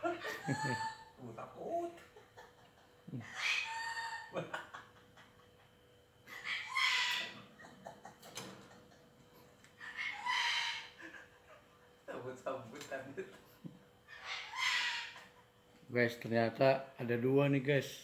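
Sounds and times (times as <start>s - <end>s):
myna harsh calls: 6.3s - 7.4s, 9.8s - 11.0s, 14.1s - 15.2s.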